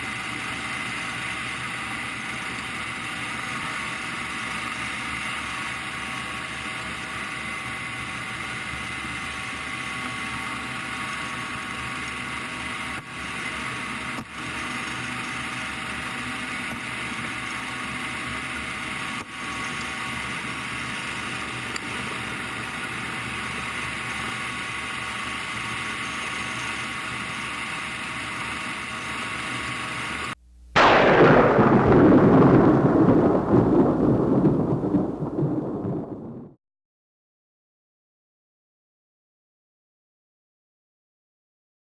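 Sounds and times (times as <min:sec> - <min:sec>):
engine whining: 0:00.0 - 0:35.4.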